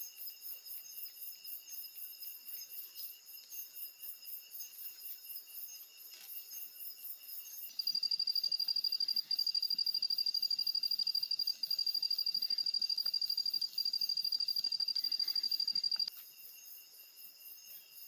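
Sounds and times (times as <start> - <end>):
loud insect trill: 3.2 - 18.0
insects pulsing chorus: 7.7 - 16.1.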